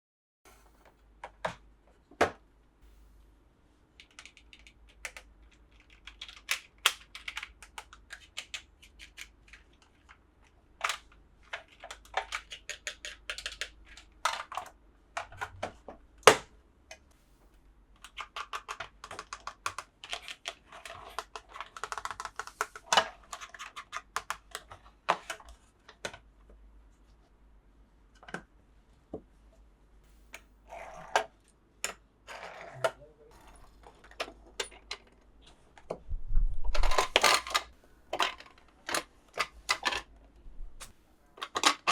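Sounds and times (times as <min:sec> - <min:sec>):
plastic toy pieces clicking: 0:04.0 - 0:10.1, 0:10.8 - 0:14.7, 0:18.0 - 0:25.4, 0:36.8 - 0:40.0, 0:41.4 - 0:41.9.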